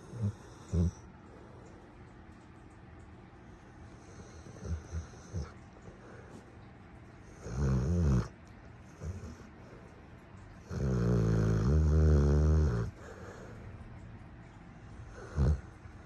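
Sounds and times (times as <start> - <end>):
puppy snoring: 0.0 - 1.1, 3.8 - 6.4, 7.3 - 9.6, 10.6 - 13.6, 14.9 - 16.0.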